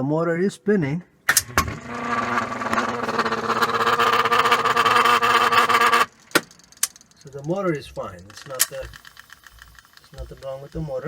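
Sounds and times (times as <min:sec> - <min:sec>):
washing machine motor humming: 0:01.3 - 0:06.1.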